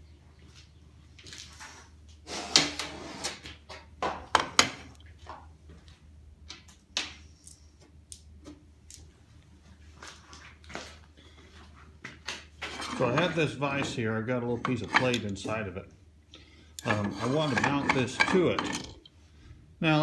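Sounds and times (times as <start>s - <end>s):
hard parts knocking and clattering: 12.6s - 15.7s, 16.8s - 19.1s.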